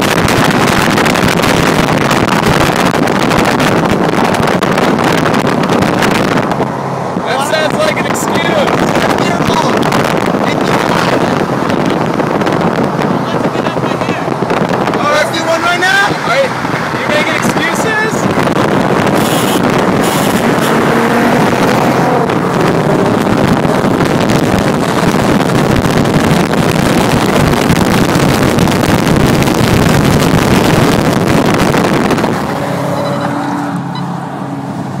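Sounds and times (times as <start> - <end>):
car engine at full throttle: 0.0 - 35.0
wind and road noise: 0.0 - 35.0.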